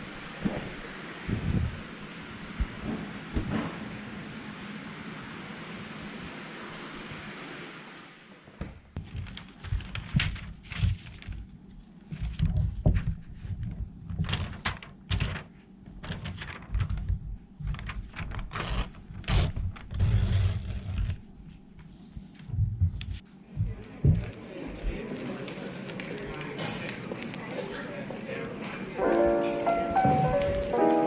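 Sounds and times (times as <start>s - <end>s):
steady hiss: 0.0s - 8.6s, 27.7s - 31.0s.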